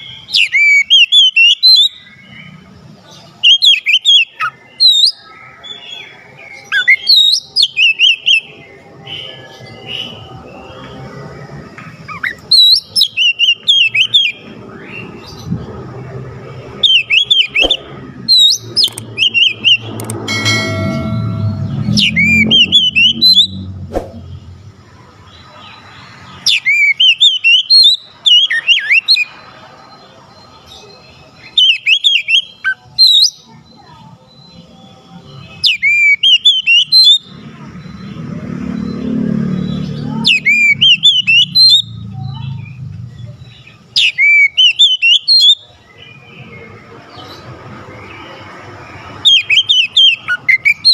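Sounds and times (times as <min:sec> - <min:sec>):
bird singing whistled phrases: 0:00.0 - 0:02.0, 0:03.4 - 0:08.5, 0:12.1 - 0:14.4, 0:16.8 - 0:20.0, 0:21.6 - 0:23.7, 0:26.5 - 0:29.3, 0:31.4 - 0:33.5, 0:35.6 - 0:37.3, 0:40.0 - 0:42.0, 0:44.0 - 0:46.3, 0:49.2 - 0:50.9
low rumble: 0:19.8 - 0:24.6.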